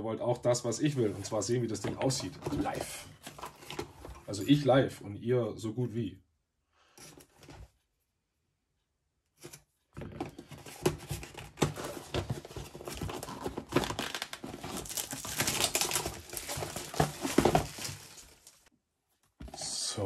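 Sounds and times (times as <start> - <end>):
packaging crinkling and rustling: 10.0 - 18.7.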